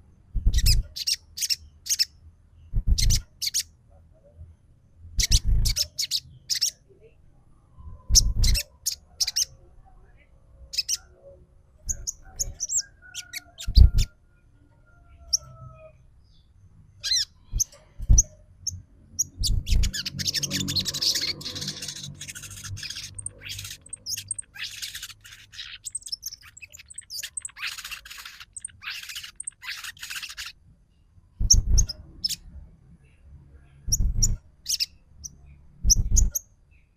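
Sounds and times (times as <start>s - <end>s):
fast chattering bird calls: 0.4s - 2.1s, 2.9s - 3.6s, 5.2s - 6.7s, 8.1s - 9.5s, 11.9s - 14.1s, 19.2s - 30.6s, 31.4s - 32.4s
songbird chirps and whistles: 19.2s - 30.5s.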